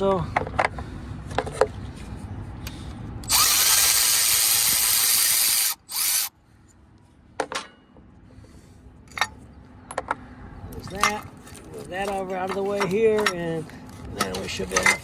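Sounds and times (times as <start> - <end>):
power tool loosening bolt: 3.2 - 6.3.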